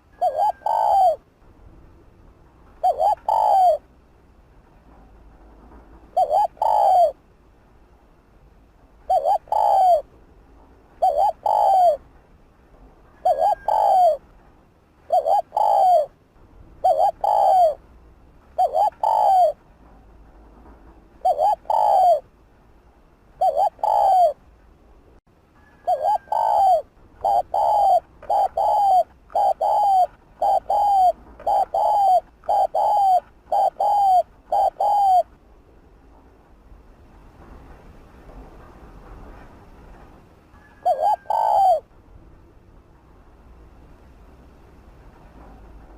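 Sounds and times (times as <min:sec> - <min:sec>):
dove cooing: 0:00.0 - 0:01.2, 0:02.8 - 0:03.9, 0:06.1 - 0:07.2, 0:09.1 - 0:10.1, 0:11.0 - 0:12.0, 0:13.2 - 0:14.2, 0:15.1 - 0:16.2, 0:16.8 - 0:17.8, 0:18.6 - 0:19.6, 0:21.2 - 0:22.3, 0:23.4 - 0:24.4, 0:25.6 - 0:35.3, 0:40.6 - 0:41.9.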